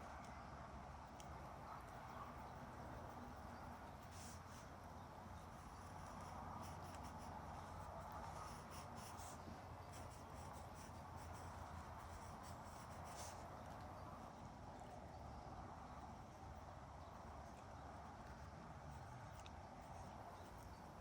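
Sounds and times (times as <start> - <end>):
faint low hum: 0.0 - 21.0
pen scratching on paper: 3.0 - 13.8.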